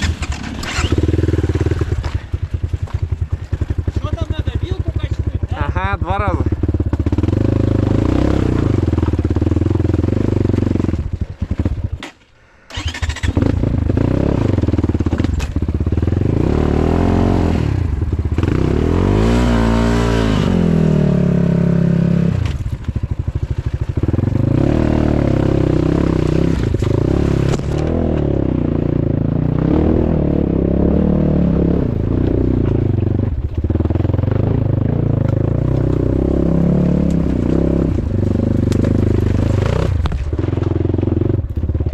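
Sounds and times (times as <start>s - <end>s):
motorcycle engine revving: 0.0s - 12.1s, 12.7s - 41.9s.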